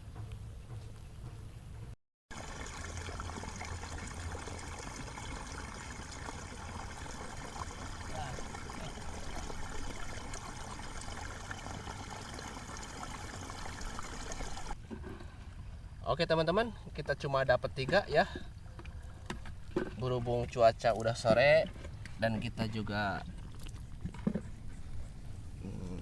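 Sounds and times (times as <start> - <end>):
water trickling: 2.3 - 14.8.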